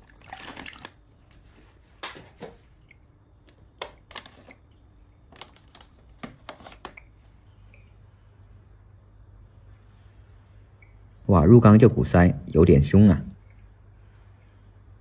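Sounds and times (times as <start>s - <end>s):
small water splashes: 0.0s - 9.2s.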